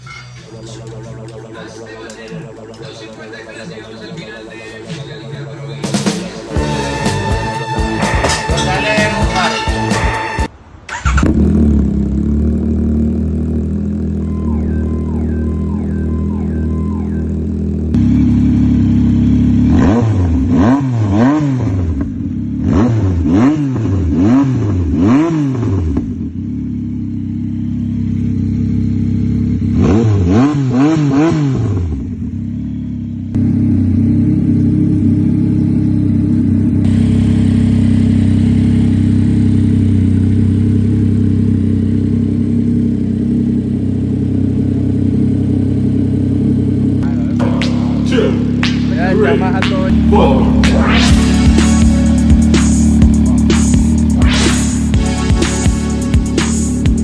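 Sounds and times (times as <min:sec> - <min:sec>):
motorcycle throttle blips: 0:10.9 - 0:20.8
motorcycle engine idling: 0:11.6 - 0:20.4, 0:22.0 - 0:22.6, 0:26.0 - 0:29.8, 0:32.0 - 0:50.6, 0:51.2 - 0:57.0.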